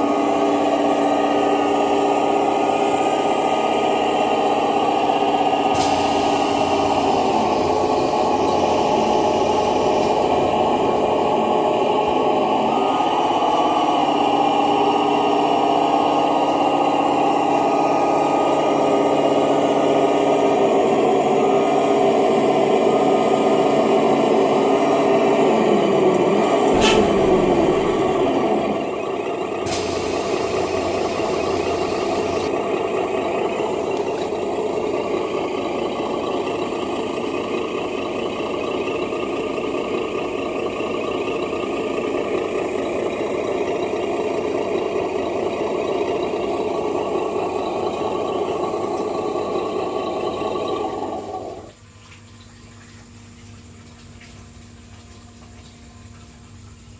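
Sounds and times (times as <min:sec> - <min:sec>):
model truck engine running: 0:00.0 - 0:51.8
air brake hiss: 0:05.5 - 0:10.7, 0:26.7 - 0:28.4, 0:29.6 - 0:32.5.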